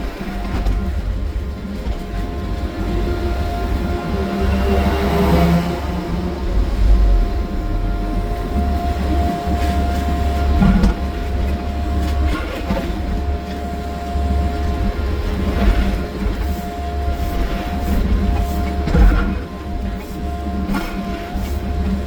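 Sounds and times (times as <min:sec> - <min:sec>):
high whine: 0:00.0 - 0:20.8
diesel engine rumble: 0:00.0 - 0:22.0.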